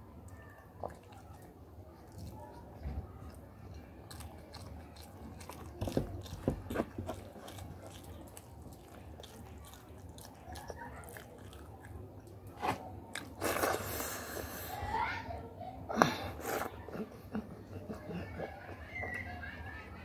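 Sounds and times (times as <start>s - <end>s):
wet chewing and smacking: 0.1s - 14.1s.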